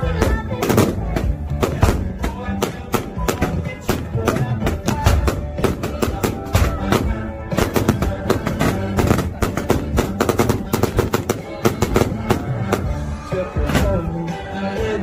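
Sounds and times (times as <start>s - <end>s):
fireworks crackling bangs: 0.0s - 13.0s
background music: 0.0s - 15.0s.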